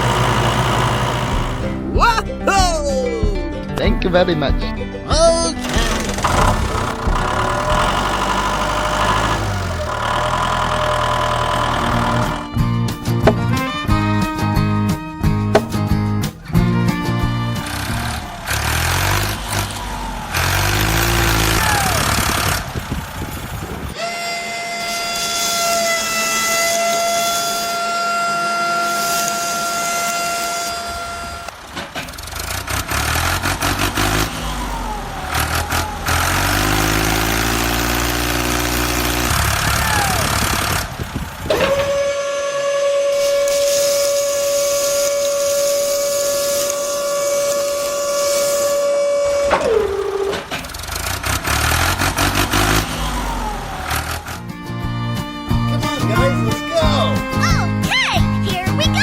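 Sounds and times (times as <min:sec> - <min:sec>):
engine running: 0:00.0 - 0:02.0, 0:05.6 - 0:24.0, 0:25.2 - 0:59.0
long horn blasts: 0:23.9 - 0:31.8, 0:36.3 - 0:50.5.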